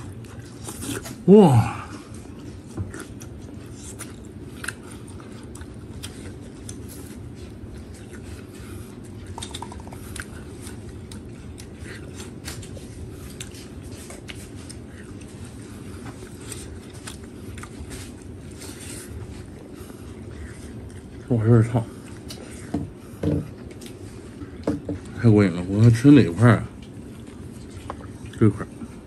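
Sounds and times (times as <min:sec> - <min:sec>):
person chewing food: 0:00.0 - 0:29.0.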